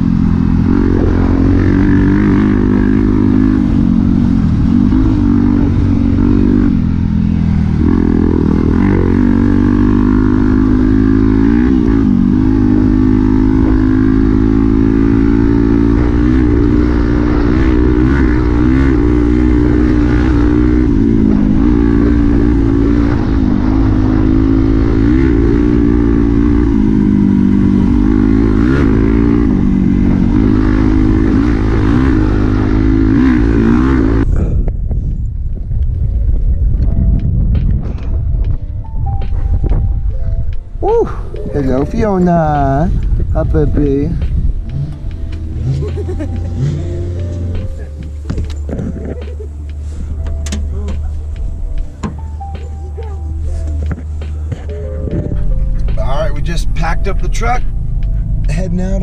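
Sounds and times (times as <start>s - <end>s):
dirt bike engine revving: 0.0s - 34.6s, 41.1s - 52.7s.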